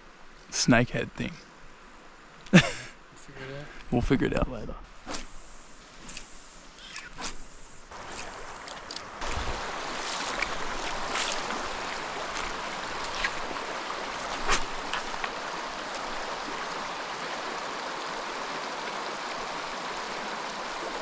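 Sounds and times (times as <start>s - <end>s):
creek water over rocks: 6.7s - 21.0s.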